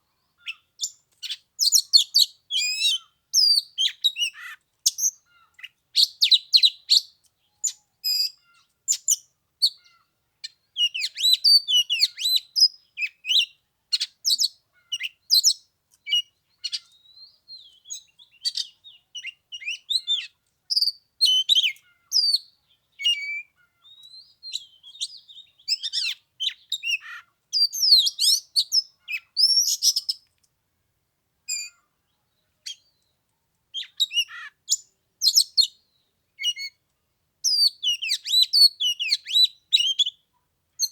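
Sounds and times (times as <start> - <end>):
bird whistles and chirps: 0.4 - 5.2, 10.8 - 30.2, 31.5 - 31.8, 33.8 - 35.8, 37.4 - 40.2.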